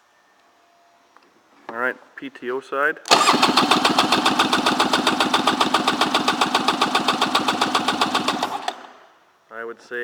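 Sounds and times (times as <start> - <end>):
jet ski engine cranking: 3.1 - 9.0.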